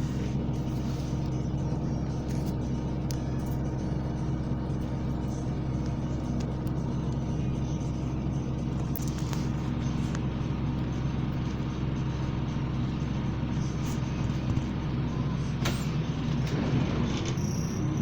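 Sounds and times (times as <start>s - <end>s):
bus diesel engine droning: 0.0s - 18.0s
sharp rattles from bus body: 15.6s - 18.0s.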